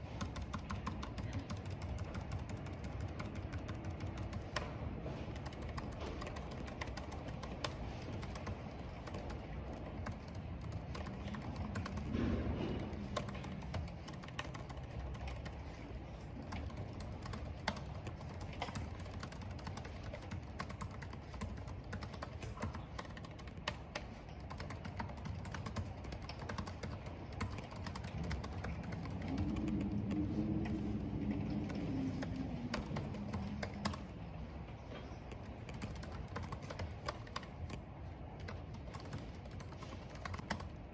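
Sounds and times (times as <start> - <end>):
typing on computer keyboard: 0.0 - 40.9
wind and rain rumble: 1.0 - 20.5, 25.8 - 40.9
wind moaning: 28.1 - 35.6.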